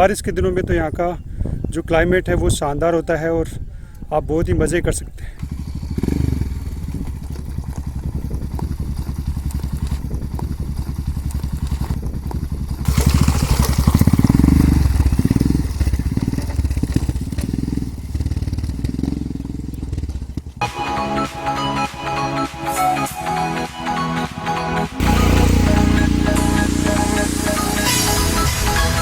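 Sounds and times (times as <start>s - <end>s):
wind noise: 0.0s - 9.1s
motorcycle engine running: 5.4s - 29.0s
music: 20.6s - 29.0s.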